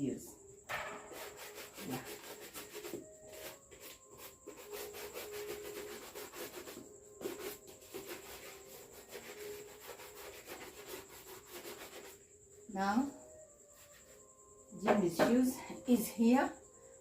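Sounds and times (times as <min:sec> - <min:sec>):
brush rubbing a leather shoe: 0:01.1 - 0:12.2.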